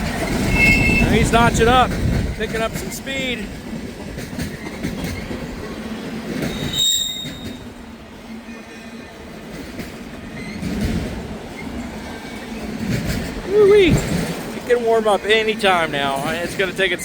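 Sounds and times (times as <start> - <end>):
freight train cars rolling: 0.0 - 17.0
high-pitched wheel squeal: 0.3 - 1.3, 6.5 - 7.7.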